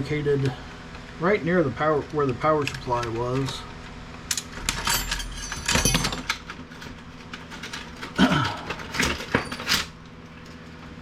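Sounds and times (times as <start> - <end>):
printer parts clicking and rattling: 4.3 - 10.5.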